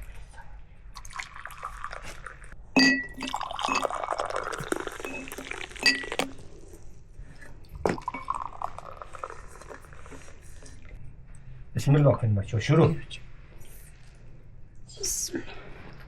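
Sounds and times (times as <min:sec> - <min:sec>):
liquid being poured: 0:01.0 - 0:11.0
dishware clinking with ringing tone: 0:02.8 - 0:03.9.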